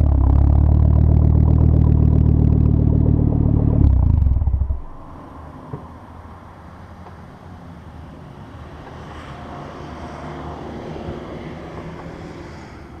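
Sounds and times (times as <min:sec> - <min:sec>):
car engine low drone: 0:00.0 - 0:05.7.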